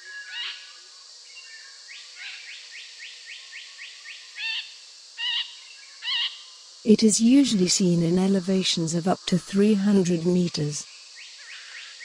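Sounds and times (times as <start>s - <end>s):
faint background ambience: 6.7s - 10.9s.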